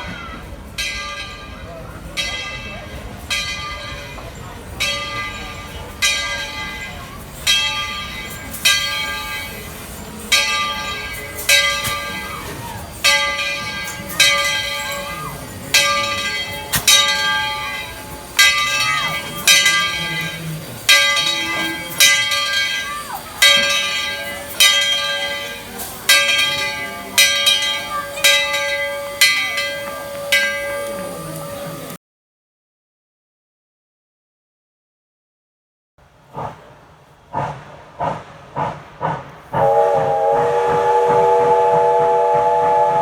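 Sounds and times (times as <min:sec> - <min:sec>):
steam locomotive bell ringing: 0:00.0 - 0:32.0, 0:39.6 - 0:43.0.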